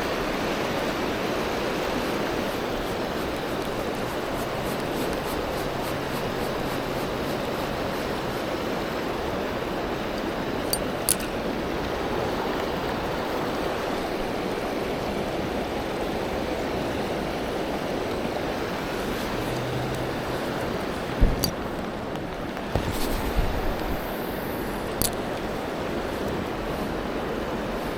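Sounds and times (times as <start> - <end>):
river water flowing over rocks: 0.0 - 27.9
sharp clicks: 21.2 - 24.0, 24.9 - 25.3.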